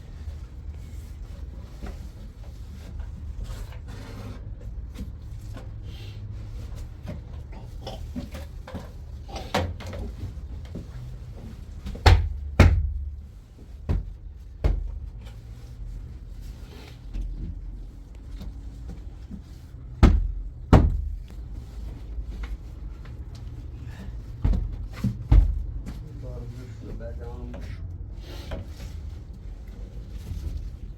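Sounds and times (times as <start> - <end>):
sharp knocks and thuds: 11.8 - 15.4, 19.3 - 21.5, 23.9 - 26.1.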